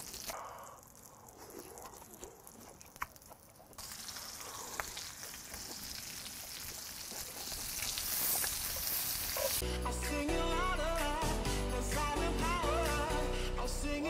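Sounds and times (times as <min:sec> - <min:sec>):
meat sizzling in a frying pan: 0:00.0 - 0:00.3, 0:03.8 - 0:09.6.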